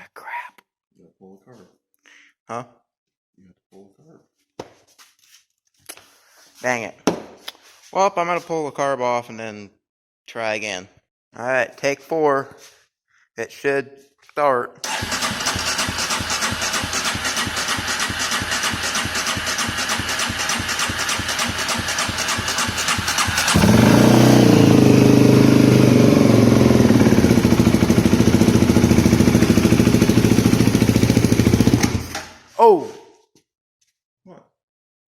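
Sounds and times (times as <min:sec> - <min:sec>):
engine cranking and starting: 0:14.8 - 0:32.4.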